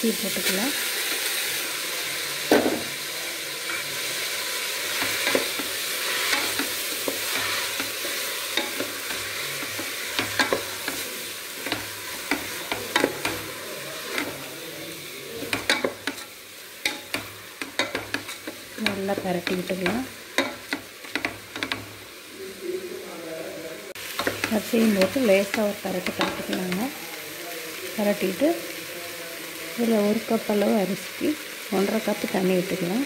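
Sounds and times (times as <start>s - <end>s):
food sizzling in oil: 0.0s - 33.0s
spatula scraping and knocking pot: 5.0s - 14.5s, 15.4s - 21.9s.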